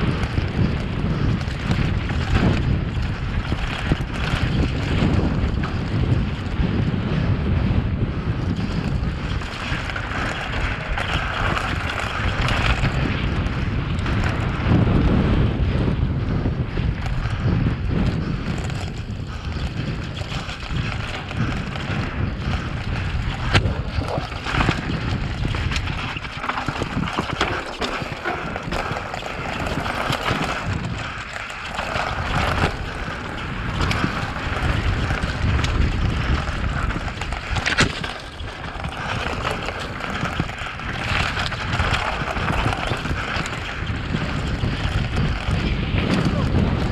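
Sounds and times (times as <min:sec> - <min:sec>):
bike rattling: 0:00.0 - 0:46.9
wind rushing over microphone: 0:00.0 - 0:46.9.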